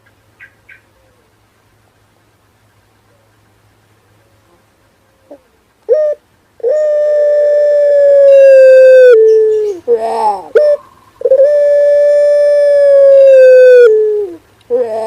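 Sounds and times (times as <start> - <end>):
rooster crowing in long calls: 6.7 - 9.6, 11.3 - 14.4.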